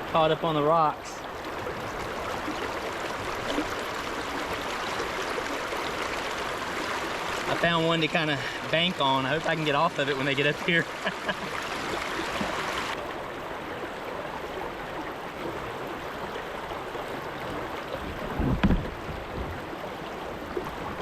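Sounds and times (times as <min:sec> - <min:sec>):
creek water running over rocks: 0:00.0 - 0:21.0
knock: 0:18.6 - 0:18.9.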